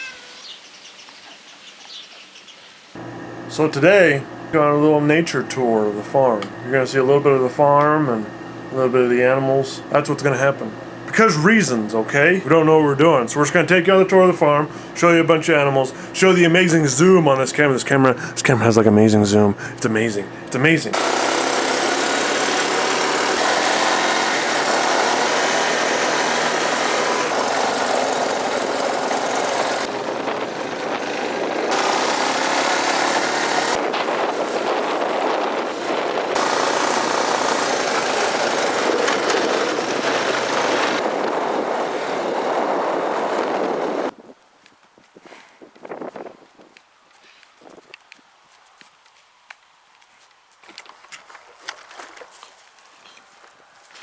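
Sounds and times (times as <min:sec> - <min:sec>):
road noise: 0:19.3 - 0:44.2
vehicle engine running: 0:19.6 - 0:41.9
wind noise: 0:28.5 - 0:32.2, 0:32.9 - 0:37.4, 0:38.4 - 0:44.4, 0:45.0 - 0:46.8.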